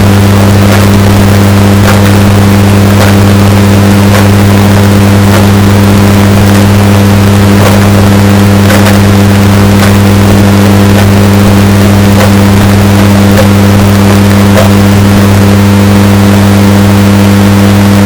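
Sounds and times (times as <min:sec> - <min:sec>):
distorted washing machine hum: 0:00.0 - 0:18.0
sharp clicks or knocks: 0:00.7 - 0:01.2, 0:01.8 - 0:02.3, 0:02.9 - 0:03.3, 0:04.0 - 0:04.6, 0:05.2 - 0:06.6, 0:07.6 - 0:11.4.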